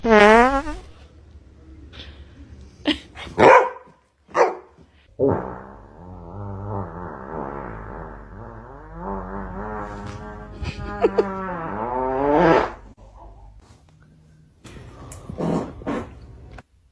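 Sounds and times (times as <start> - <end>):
dog barking: 3.4 - 4.8.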